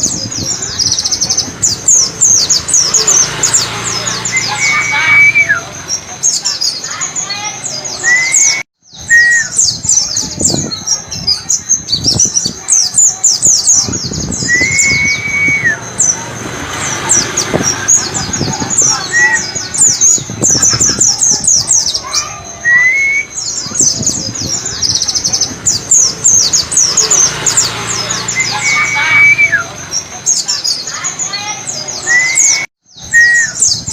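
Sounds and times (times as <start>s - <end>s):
birds twittering high chirps: 0.0s - 33.9s
low whistled bird notes: 7.8s - 16.2s, 31.9s - 33.9s.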